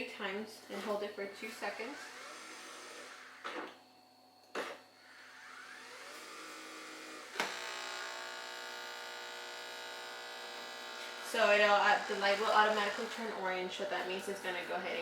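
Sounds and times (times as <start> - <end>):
coffee machine pump humming: 4.6 - 15.0.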